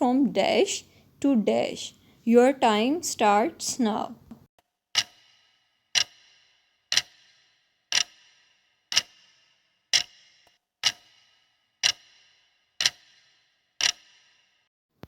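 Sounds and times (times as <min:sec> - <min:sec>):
clock ticking: 0:05.0 - 0:05.2, 0:06.0 - 0:06.3, 0:06.9 - 0:09.3, 0:09.9 - 0:14.2.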